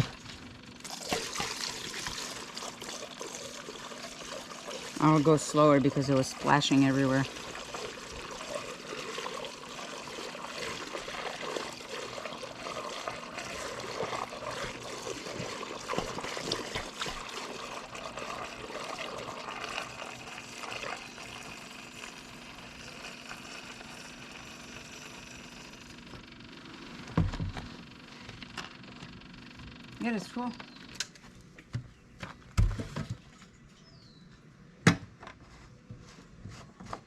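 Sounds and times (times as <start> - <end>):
fuel trickling into tank: 0.0 - 26.1.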